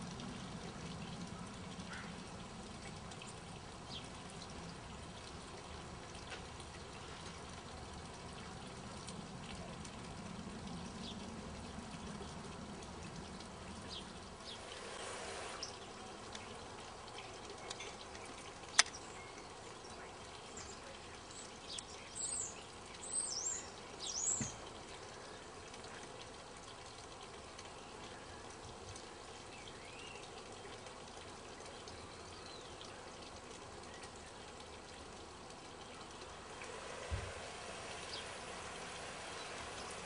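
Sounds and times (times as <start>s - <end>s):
faint hiss: 13.9s - 17.8s, 32.2s - 40.0s.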